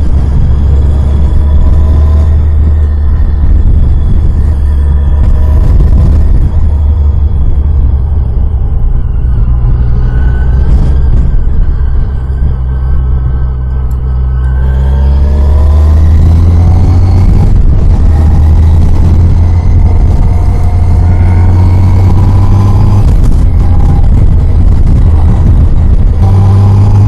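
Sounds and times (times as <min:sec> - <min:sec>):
motorcycle engine pulling away: 0:14.4 - 0:27.0.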